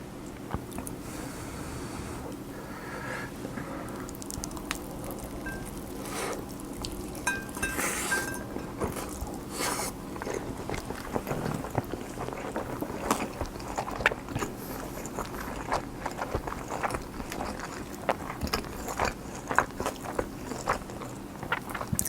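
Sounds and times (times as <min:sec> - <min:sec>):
wet chewing and mouth sounds: 0:03.9 - 0:22.0
spoon clinking against dish: 0:05.4 - 0:05.8, 0:07.2 - 0:08.8.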